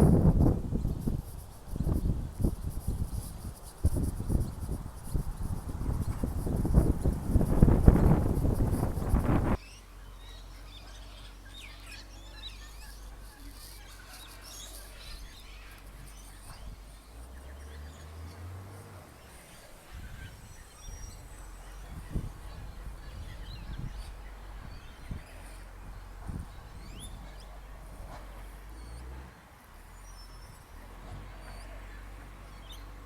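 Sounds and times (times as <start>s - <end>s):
faint bird chirps: 7.8s - 18.5s, 19.2s - 29.2s.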